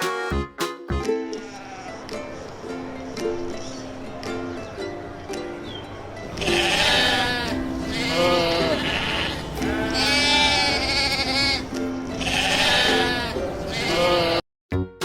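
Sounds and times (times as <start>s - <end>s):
background music: 0.0s - 15.0s
sheep or goat bleating: 1.3s - 2.0s, 6.4s - 14.4s.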